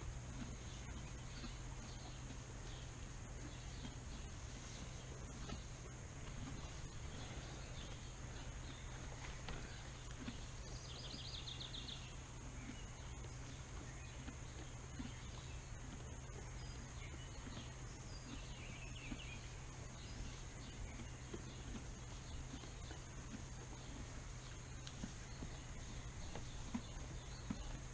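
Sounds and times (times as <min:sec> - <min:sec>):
steady low hum: 0:00.0 - 0:27.9
songbird trills: 0:00.2 - 0:27.9.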